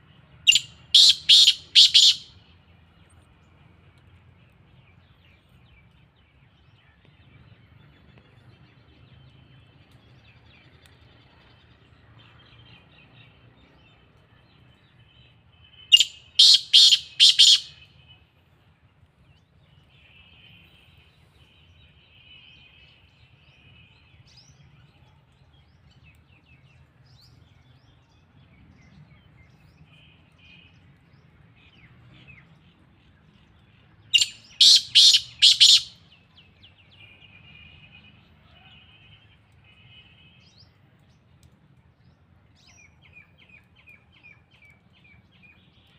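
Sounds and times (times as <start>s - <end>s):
francolin harsh call: 0.5s - 2.3s, 15.9s - 17.8s, 34.2s - 36.0s.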